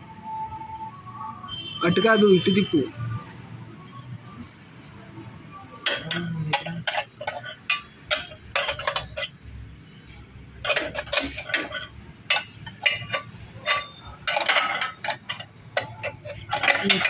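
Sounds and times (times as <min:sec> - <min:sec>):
hand tools clinking on metal: 0:03.8 - 0:04.2, 0:05.5 - 0:09.4, 0:10.6 - 0:17.0.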